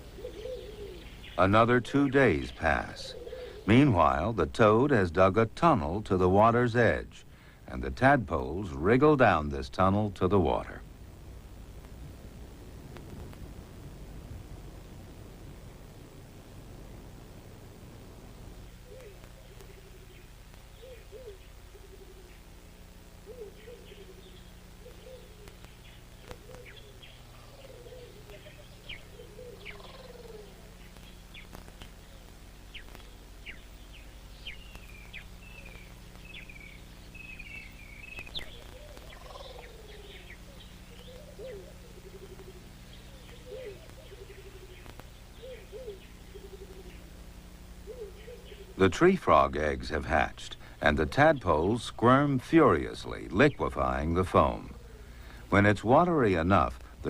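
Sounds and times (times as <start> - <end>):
bird warbling: 0.0 - 4.1, 18.7 - 22.5, 23.2 - 47.2, 47.8 - 48.9
low bird calls: 0.0 - 4.4, 18.6 - 22.6, 23.2 - 48.9, 50.6 - 55.6
steady low hum: 0.0 - 57.0.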